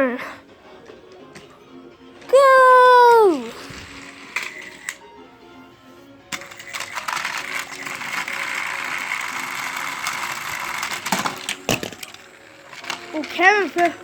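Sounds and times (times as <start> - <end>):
toy train rattling whir: 3.2 - 5.2, 6.3 - 14.0.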